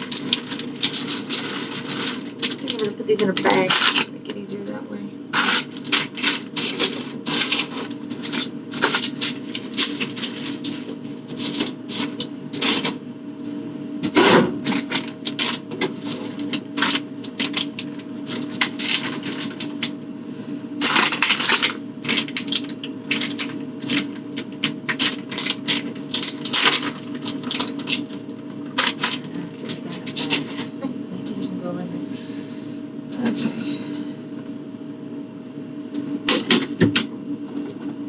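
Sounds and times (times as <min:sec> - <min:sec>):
plastic bag crinkling: 0:00.0 - 0:04.4, 0:05.3 - 0:20.0, 0:20.8 - 0:30.8
steady low hum: 0:00.0 - 0:38.0.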